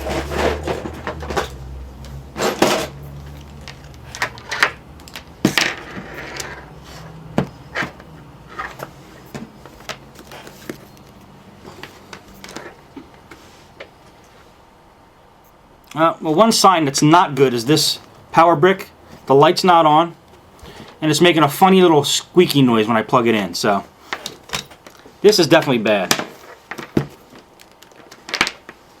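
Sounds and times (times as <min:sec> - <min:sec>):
hands handling wires and plugs: 0:00.0 - 0:14.5, 0:23.6 - 0:29.0.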